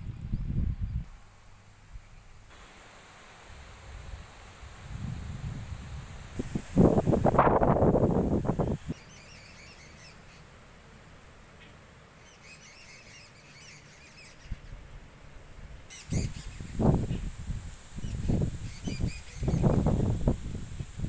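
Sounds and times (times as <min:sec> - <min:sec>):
wind gusts on microphone: 0:00.0 - 0:01.1, 0:03.6 - 0:09.0, 0:15.6 - 0:21.0
rustling plants: 0:03.4 - 0:09.0
bird chirping: 0:08.8 - 0:10.5, 0:11.6 - 0:14.8, 0:15.9 - 0:17.3, 0:18.0 - 0:20.0.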